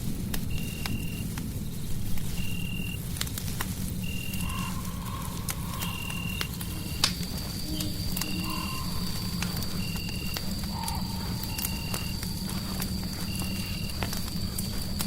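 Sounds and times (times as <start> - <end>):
fire crackling and popping: 0.0 - 15.0
held whistling tone: 5.8 - 14.0.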